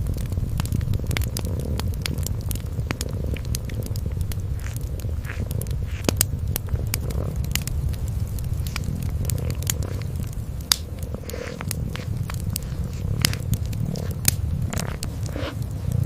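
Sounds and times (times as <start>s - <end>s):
kitten purring: 0.0s - 16.0s
wood fire crackling: 0.0s - 16.0s.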